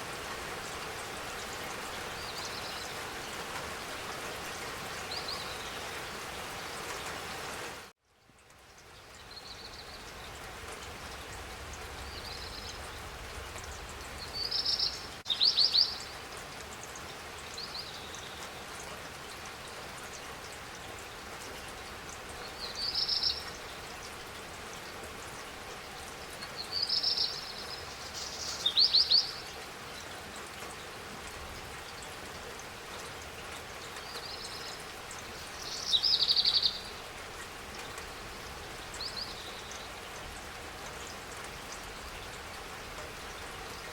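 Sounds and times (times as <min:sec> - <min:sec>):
rain hissing: 0:00.0 - 0:43.9
bird chirping: 0:35.4 - 0:37.0.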